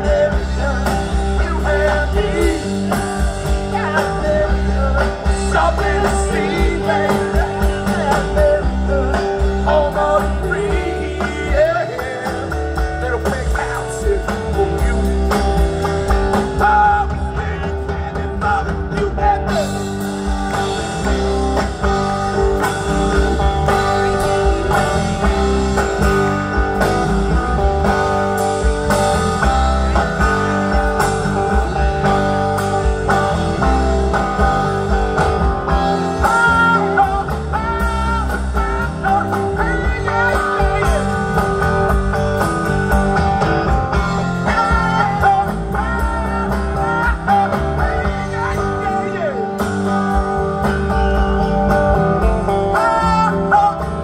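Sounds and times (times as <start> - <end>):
electric guitar: 0.0 - 54.0
live rock band playing: 0.0 - 54.0.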